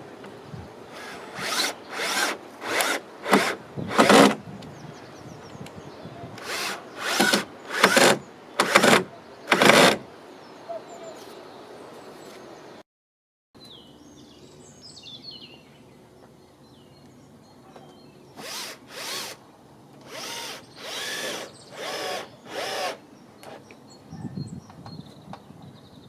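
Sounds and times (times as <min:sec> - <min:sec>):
birds chirping: 0:00.3 - 0:12.8, 0:13.6 - 0:19.3, 0:20.0 - 0:26.0
power drill bursts: 0:01.0 - 0:04.4, 0:06.4 - 0:10.0, 0:18.4 - 0:19.4, 0:20.0 - 0:23.6.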